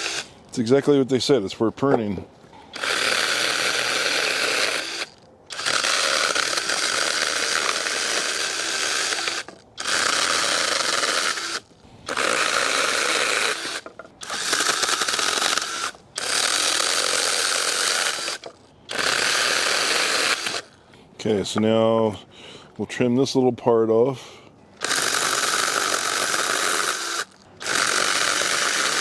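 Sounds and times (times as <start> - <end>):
mini chainsaw cutting branches: 0.0 - 0.3, 2.7 - 20.7, 24.8 - 29.0.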